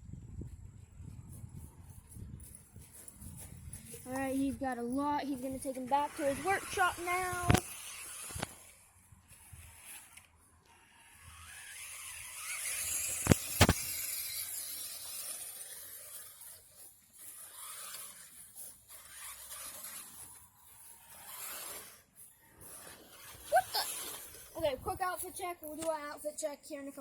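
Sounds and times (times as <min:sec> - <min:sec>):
rc truck driving rushing hiss: 0:05.3 - 0:25.5
sharp clicks: 0:07.4 - 0:08.7.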